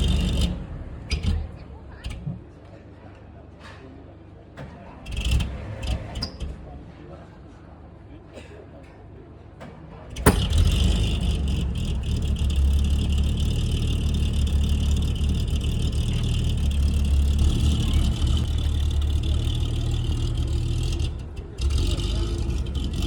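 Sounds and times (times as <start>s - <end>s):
car engine running: 0.0s - 2.4s, 10.1s - 23.0s.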